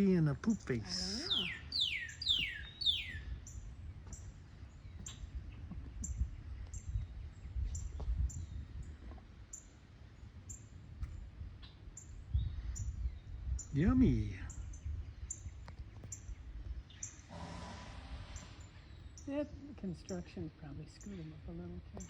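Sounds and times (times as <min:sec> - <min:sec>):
short high bird chirps: 0:01.2 - 0:03.4.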